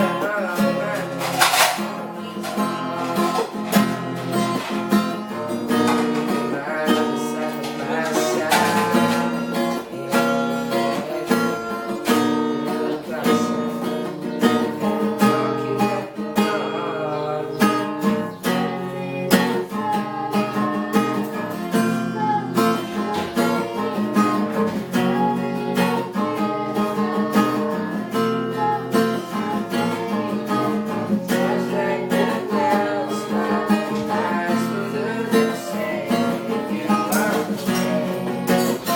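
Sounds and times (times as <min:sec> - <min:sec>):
acoustic guitar strumming chords: 0:00.0 - 0:38.9.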